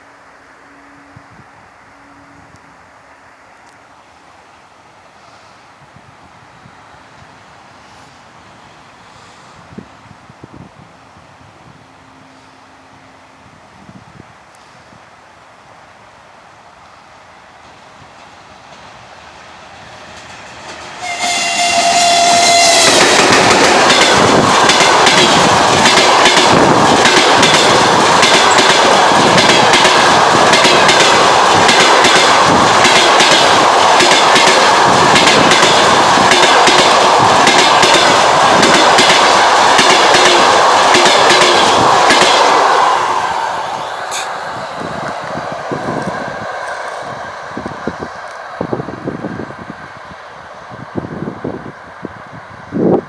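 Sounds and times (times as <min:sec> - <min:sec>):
train wheels clattering on rails: 0:17.6 - 0:49.5
locomotive horn: 0:21.0 - 0:23.5.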